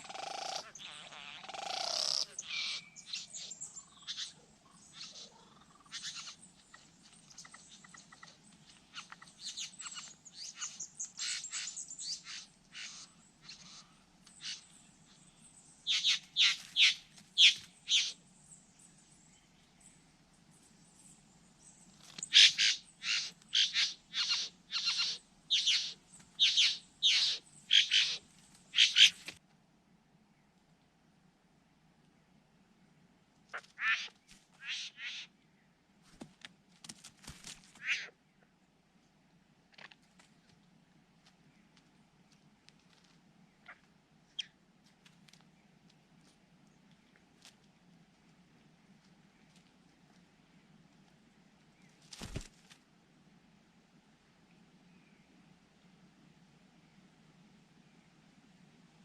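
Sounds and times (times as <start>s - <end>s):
birds calling sharp notes: 22.2s - 29.3s.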